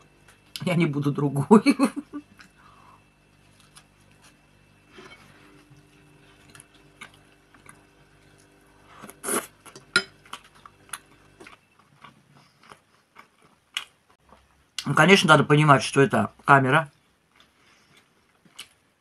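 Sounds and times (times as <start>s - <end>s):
wet chewing and smacking: 9.7s - 14.6s.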